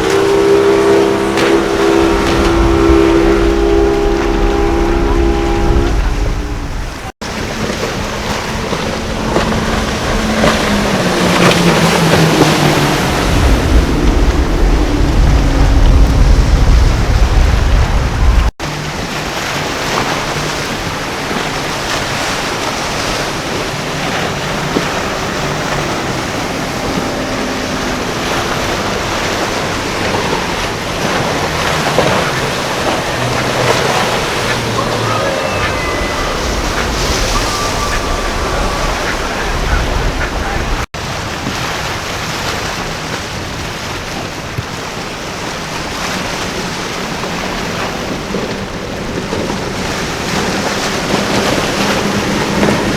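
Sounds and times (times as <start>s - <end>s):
wind on microphone: 0.0s - 18.5s, 19.8s - 41.6s
motorboat engine: 0.0s - 52.9s
surf: 0.0s - 52.9s.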